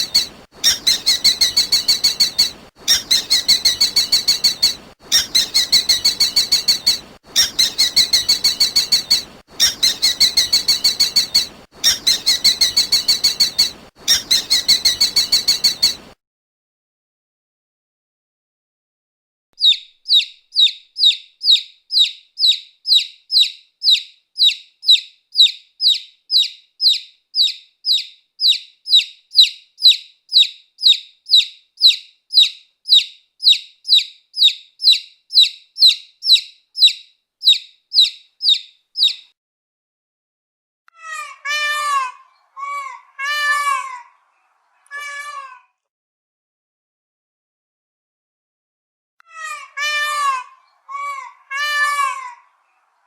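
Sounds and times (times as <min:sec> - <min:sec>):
lower animal calls: 0:00.0 - 0:16.2.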